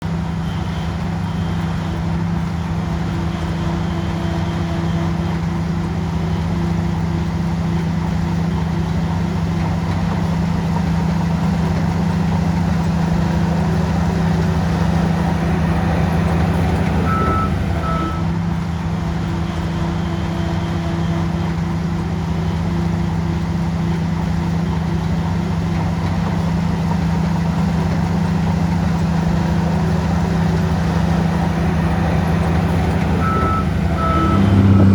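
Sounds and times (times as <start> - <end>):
bulldozer diesel engine running: 0.0 - 34.9
short high beeps: 17.0 - 18.3, 33.2 - 34.9.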